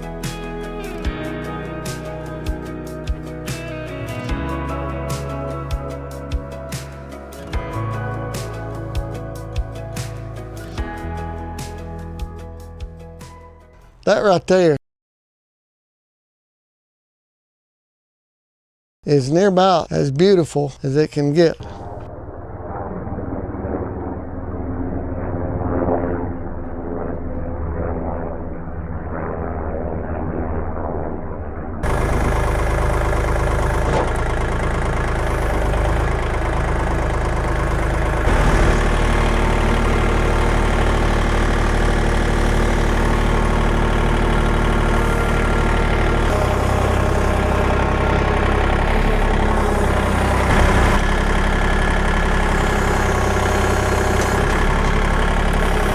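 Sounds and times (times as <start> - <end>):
engine running steadily: 0.0 - 13.4, 31.8 - 55.9.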